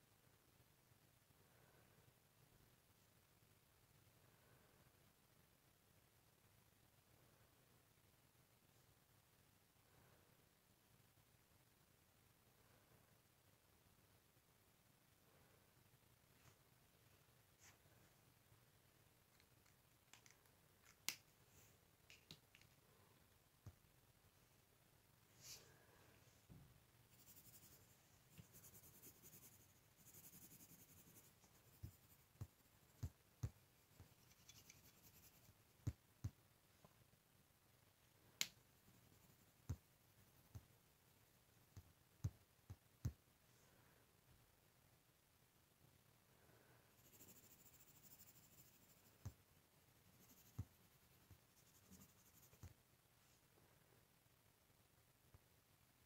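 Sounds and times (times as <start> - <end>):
pen scratching on paper: 27.1 - 35.5, 50.1 - 52.7
soft taps on drawing surface: 31.8 - 34.1.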